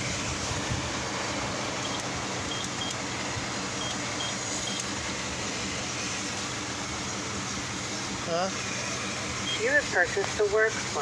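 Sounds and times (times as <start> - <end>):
car engine idling: 0.0 - 11.0
keypad beeping: 1.8 - 3.0.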